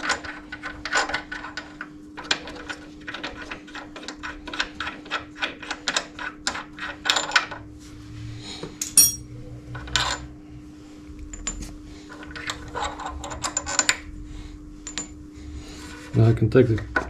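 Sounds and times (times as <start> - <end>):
ringing metallic clink: 8.8 - 9.3.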